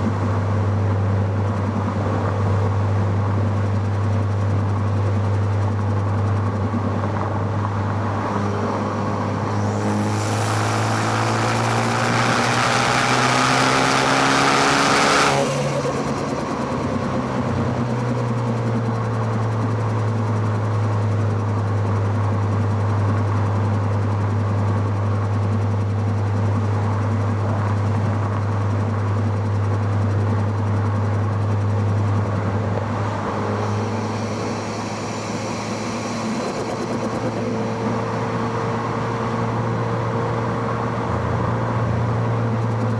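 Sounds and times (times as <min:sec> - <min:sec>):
car engine accelerating: 0:07.5 - 0:19.6, 0:32.0 - 0:42.9.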